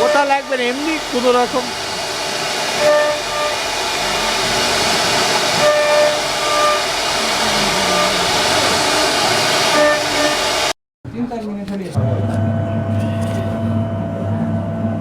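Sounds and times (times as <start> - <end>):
cnc router spindle cutting wood: 0.0 - 10.7.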